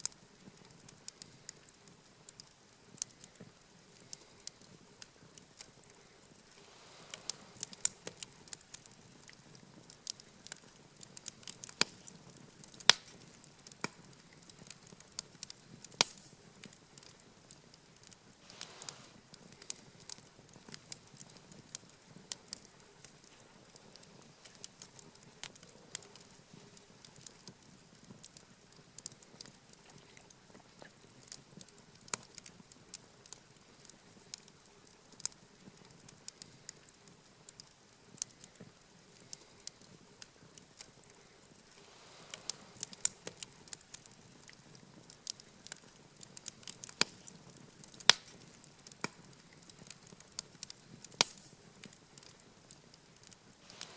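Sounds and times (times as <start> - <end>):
campfire crackling: 0.0 - 53.9
sharp fire pops: 6.7 - 14.7, 15.4 - 17.1, 45.2 - 49.9, 50.6 - 52.4.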